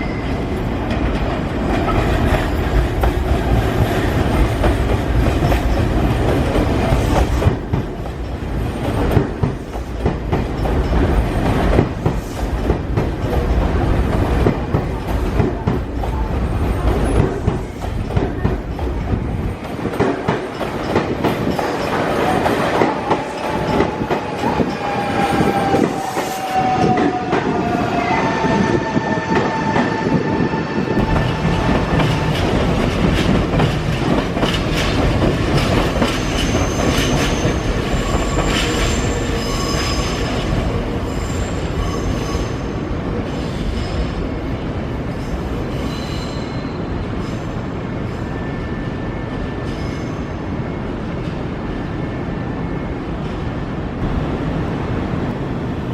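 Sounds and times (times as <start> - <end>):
train wheels rumbling on rails: 0.0 - 55.9
clickety-clack over rail joints: 0.3 - 27.6, 31.0 - 40.7
high wheel squeal: 36.2 - 42.6, 45.8 - 46.8.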